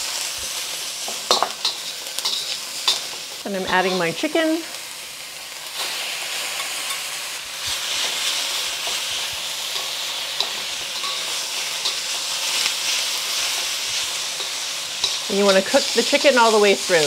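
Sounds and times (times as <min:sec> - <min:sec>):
chicken sizzling in hot oil: 0:00.0 - 0:17.0
spatula tapping and scraping wok: 0:01.0 - 0:04.3, 0:06.5 - 0:16.6.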